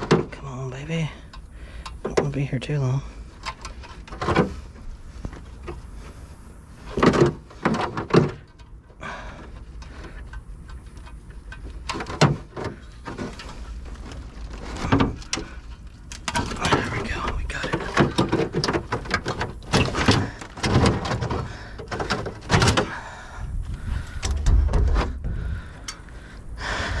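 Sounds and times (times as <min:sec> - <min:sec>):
knocks and scrapes of tools: 0:03.4 - 0:05.8, 0:06.8 - 0:08.7, 0:09.5 - 0:23.0.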